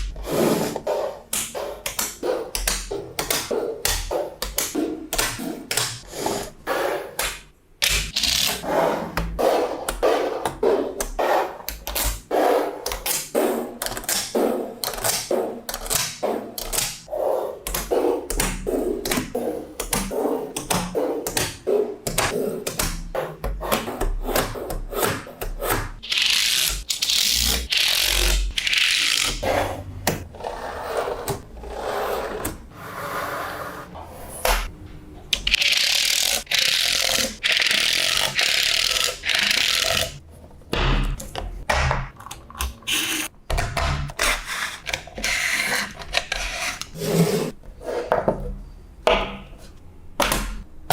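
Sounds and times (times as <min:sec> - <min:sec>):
balls scraping and rattling: 0:35.4 - 0:43.3, 0:44.2 - 0:48.6.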